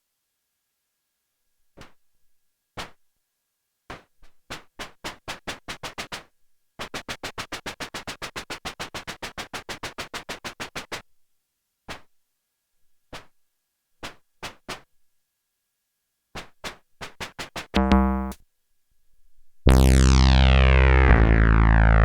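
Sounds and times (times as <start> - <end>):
synthesizer percussive noise hits: 17.8 - 18.4, 19.7 - 22.0.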